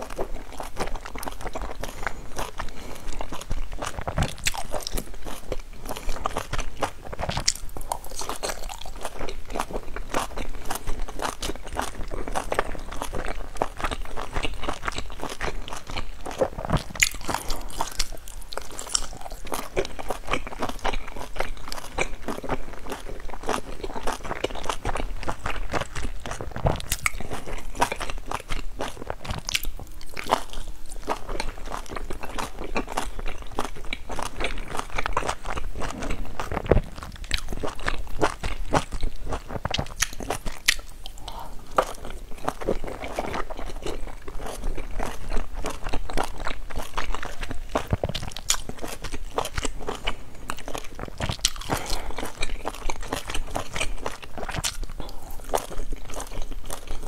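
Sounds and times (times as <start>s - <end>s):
person biting and chewing: 0.0s - 57.0s.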